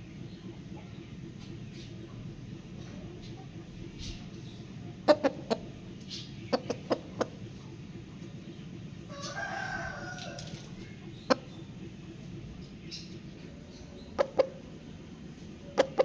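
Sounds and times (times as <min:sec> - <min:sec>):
rooster clucking: 0:00.3 - 0:16.0
rooster drawn-out call: 0:09.1 - 0:10.7.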